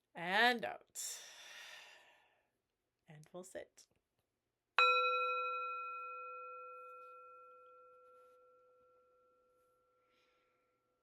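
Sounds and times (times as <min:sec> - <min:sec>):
meditation bell ringing: 0:04.8 - 0:10.1.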